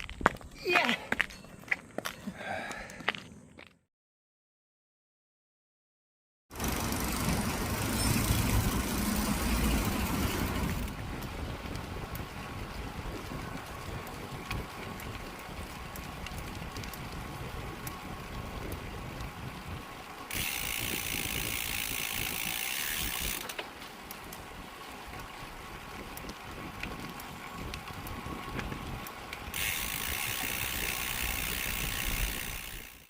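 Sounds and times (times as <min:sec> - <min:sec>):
bicycle freewheel hub buzzing: 0:06.5 - 0:33.0
wind rumble on microphone: 0:08.1 - 0:23.4, 0:24.4 - 0:32.9.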